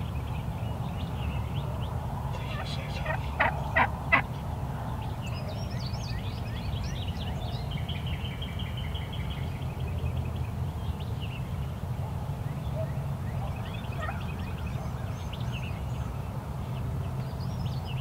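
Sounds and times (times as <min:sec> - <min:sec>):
small songbirds singing: 0:00.0 - 0:04.4
turkey gobble: 0:02.4 - 0:04.3
turkey yelping: 0:02.4 - 0:04.3.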